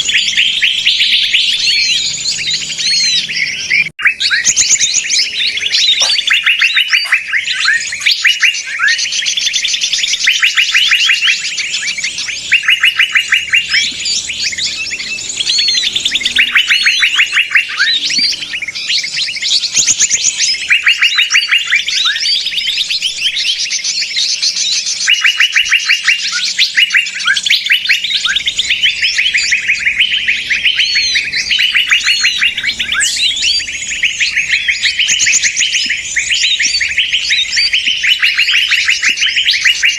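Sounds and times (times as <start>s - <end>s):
songbirds chirping trills: 0.0s - 39.9s.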